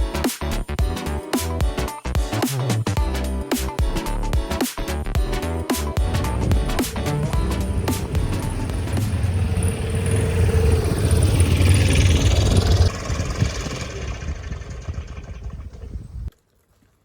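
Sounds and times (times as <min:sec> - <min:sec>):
motorcycle engine running: 0:06.0 - 0:16.3.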